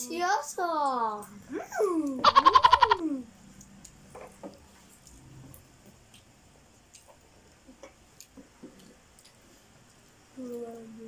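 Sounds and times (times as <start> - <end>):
quiet room hiss: 0.0 - 11.0
children chewing and eating: 3.0 - 11.0.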